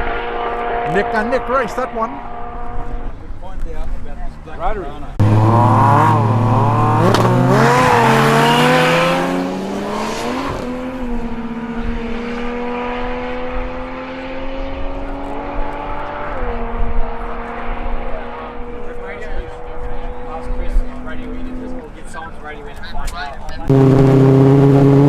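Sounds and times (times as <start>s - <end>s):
drag car engine revving: 5.1s - 22.8s, 23.5s - 25.0s.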